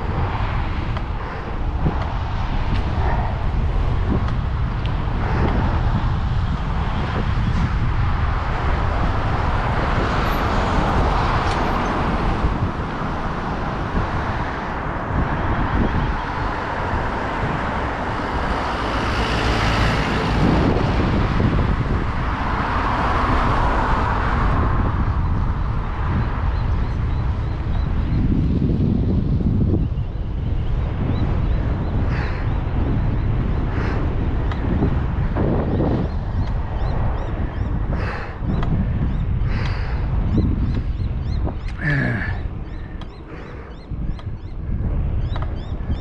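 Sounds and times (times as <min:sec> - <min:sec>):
road traffic rumble: 0:00.0 - 0:46.0
vehicles passing: 0:00.0 - 0:46.0
wind buffeting microphone: 0:00.0 - 0:46.0.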